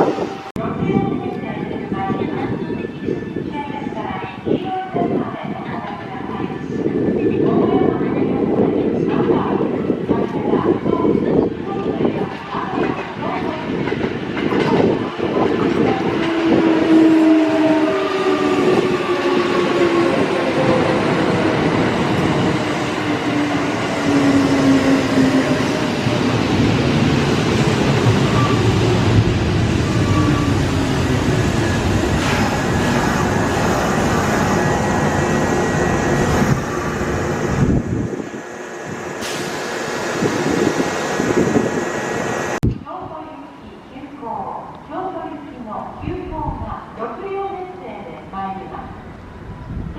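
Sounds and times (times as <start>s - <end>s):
electric train rumble: 11.2s - 42.6s.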